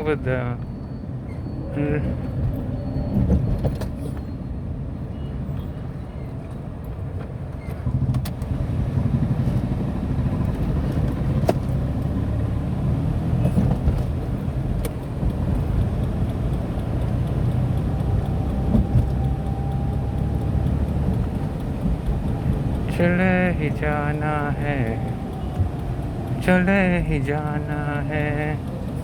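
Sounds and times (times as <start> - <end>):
car engine and road rumble: 0.0 - 29.0
sharp ticks: 9.6 - 29.0.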